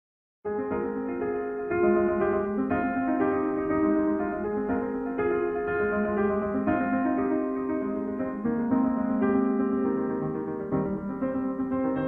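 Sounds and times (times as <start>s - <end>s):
piano chords: 0.4s - 12.0s.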